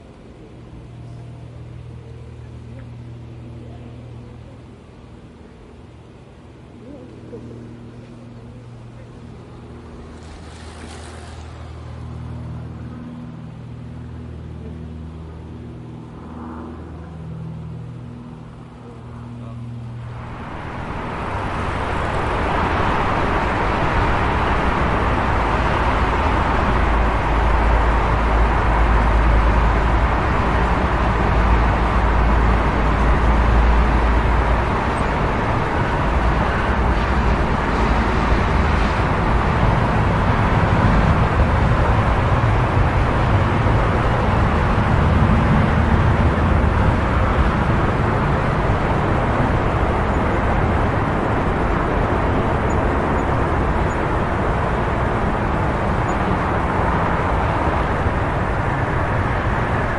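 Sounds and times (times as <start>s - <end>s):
heavy deep vehicle rumble: 0.0s - 59.9s
road traffic rumble: 0.0s - 59.9s.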